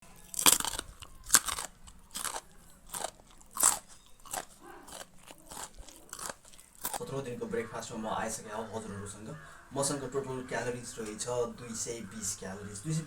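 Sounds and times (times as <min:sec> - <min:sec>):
person chewing crisp fruit: 0:00.0 - 0:07.4.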